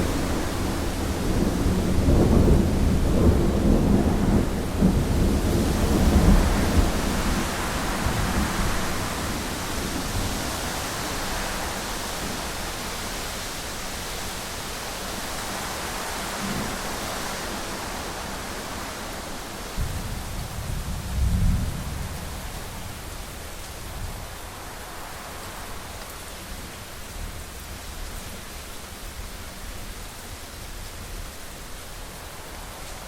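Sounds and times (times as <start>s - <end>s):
thunder rumbling: 0.0s - 11.8s, 19.8s - 23.1s
heavy rain against window: 0.0s - 33.0s.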